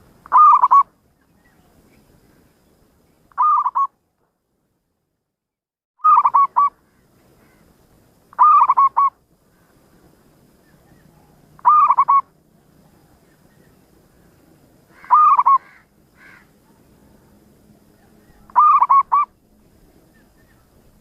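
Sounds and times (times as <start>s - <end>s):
dove cooing: 0.3s - 0.9s, 3.4s - 3.9s, 6.1s - 6.7s, 8.4s - 9.2s, 10.9s - 12.3s, 14.9s - 16.5s, 18.0s - 19.4s.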